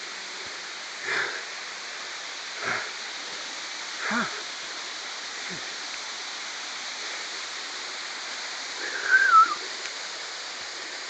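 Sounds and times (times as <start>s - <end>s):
waterfall rushing: 0.0s - 11.0s
wavering whistle-like call: 8.9s - 9.6s.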